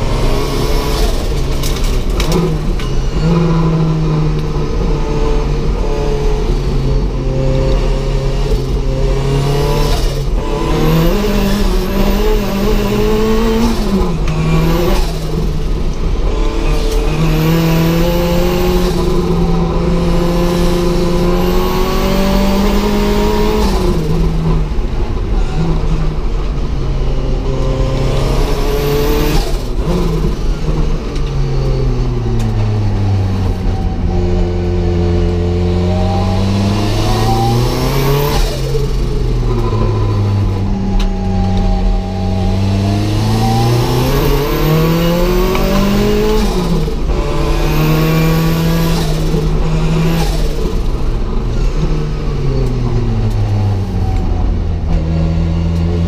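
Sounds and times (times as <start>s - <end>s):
car engine revving hard: 0.0s - 26.7s, 27.3s - 56.0s.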